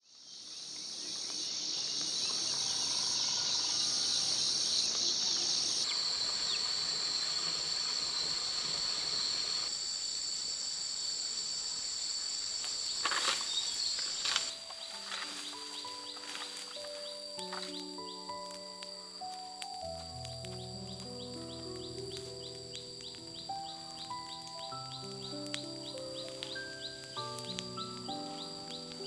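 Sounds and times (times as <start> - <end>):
insects chorus: 0.0 - 29.0.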